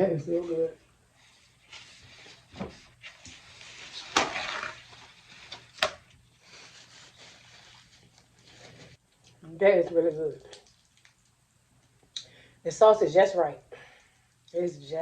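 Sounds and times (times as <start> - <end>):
person chewing food: 10.5 - 11.4.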